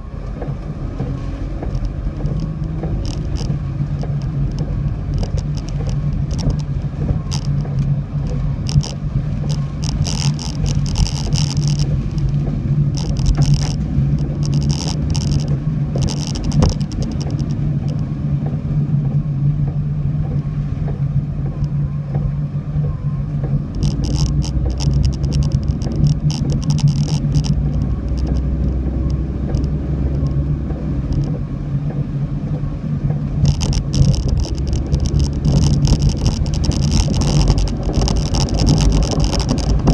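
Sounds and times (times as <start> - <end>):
car engine and road drone: 0.0 - 39.9.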